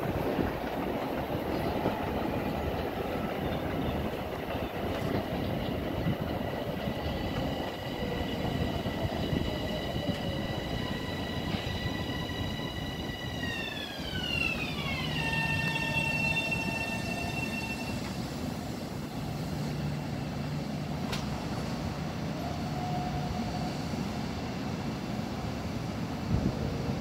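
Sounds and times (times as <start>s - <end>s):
train wheels rumbling on track: 0.0s - 27.0s
traction motor whine: 8.4s - 18.2s.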